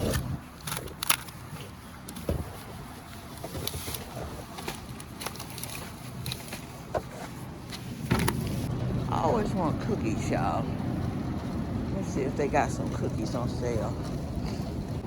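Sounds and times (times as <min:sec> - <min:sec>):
low steady hum: 0:08.0 - 0:15.0.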